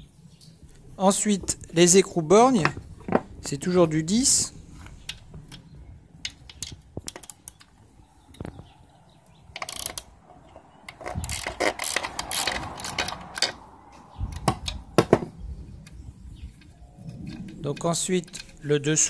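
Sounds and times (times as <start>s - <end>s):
metal clicks: 4.8s - 8.6s, 9.2s - 15.0s, 15.8s - 19.0s
ratchet wrench clicking: 9.6s - 10.1s, 10.9s - 13.6s.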